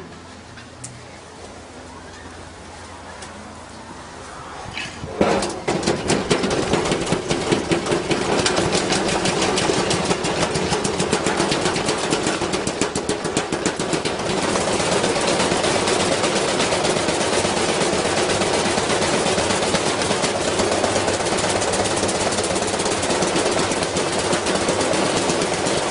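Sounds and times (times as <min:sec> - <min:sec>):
washing machine motor hum: 0:05.0 - 0:25.9
iron banging in washing machine drum: 0:05.2 - 0:25.9.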